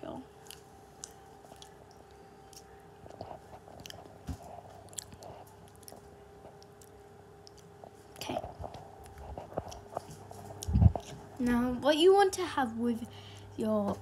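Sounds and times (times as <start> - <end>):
faint steady hum: 0.0 - 14.0
person chewing: 0.4 - 11.3.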